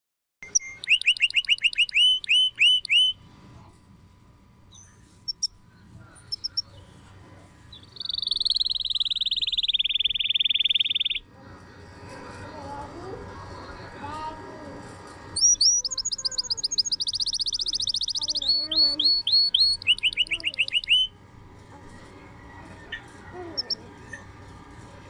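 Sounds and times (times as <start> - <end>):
canary singing: 0.4 - 3.2, 4.7 - 5.6, 6.2 - 7.0, 7.7 - 11.3, 15.3 - 21.2, 22.5 - 24.3.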